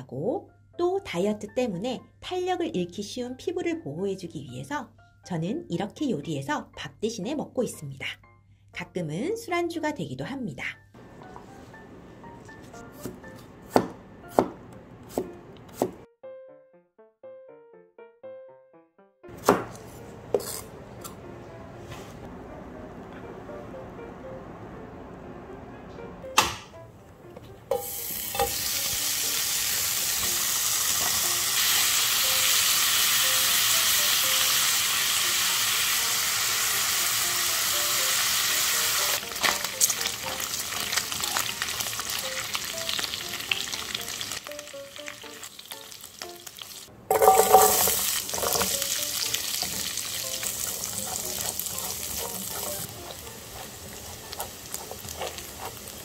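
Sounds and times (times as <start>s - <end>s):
garlic sizzling in fat: 27.7s - 56.0s
pork sizzling in a frying pan: 27.7s - 56.0s
chopsticks clicking and scraping: 49.6s - 56.0s.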